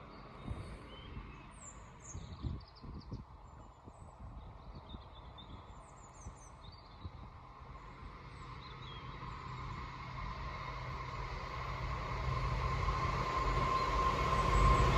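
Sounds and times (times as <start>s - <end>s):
low outdoor rumble: 7.1s - 14.9s
train approaching: 7.5s - 14.9s.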